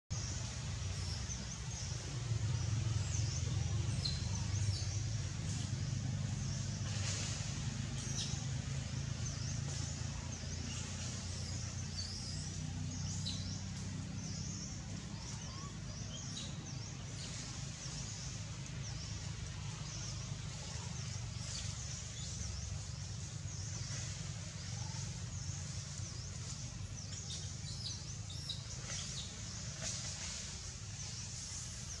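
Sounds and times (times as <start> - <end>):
small birds chirping: 0.1 - 32.0
steady low rumble: 0.1 - 32.0.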